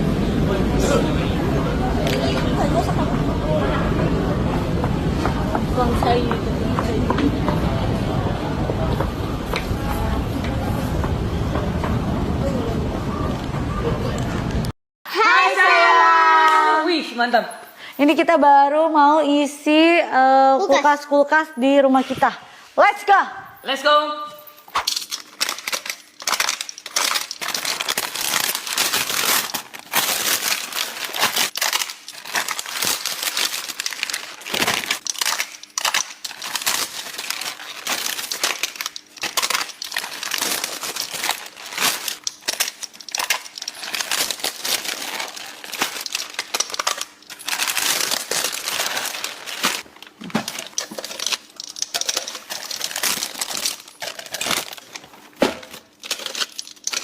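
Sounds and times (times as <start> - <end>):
items clicking and clattering: 24.5 - 57.0
plastic bags crinkling: 24.7 - 57.0.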